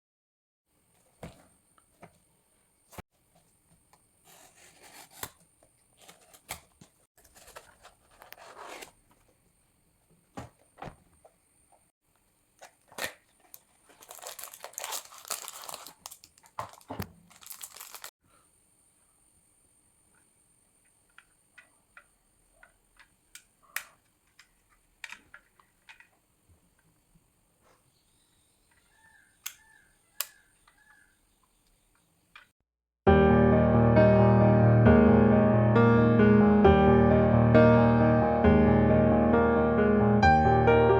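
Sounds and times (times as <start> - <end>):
packaging rustling and tearing: 4.3 - 9.0, 12.6 - 18.1.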